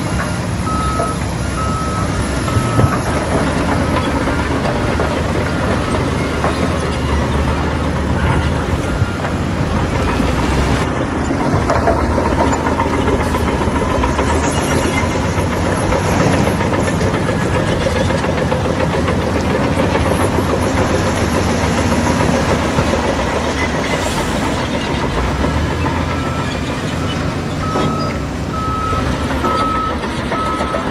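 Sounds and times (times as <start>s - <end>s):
reversing beeper: 0.0s - 10.4s, 26.0s - 30.9s
bulldozer diesel engine: 0.0s - 30.9s
steel tracks clanking: 0.0s - 30.9s.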